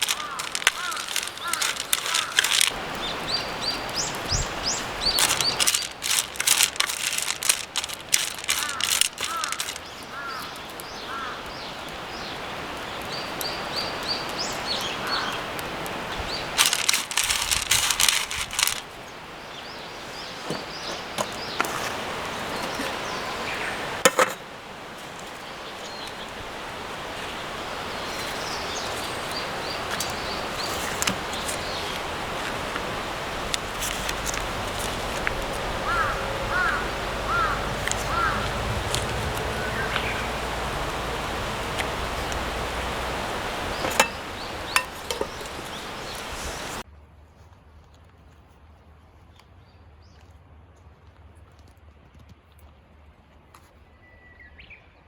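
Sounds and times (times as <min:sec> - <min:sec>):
rapid crackling clicks: 0:00.0 - 0:10.9, 0:16.5 - 0:18.9, 0:28.0 - 0:46.3
small birds chirping: 0:00.0 - 0:24.0, 0:25.0 - 0:46.8.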